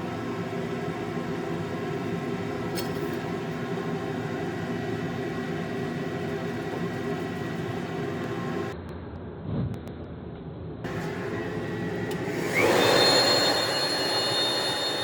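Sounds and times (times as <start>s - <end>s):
electric grinder running: 10.9s - 15.0s.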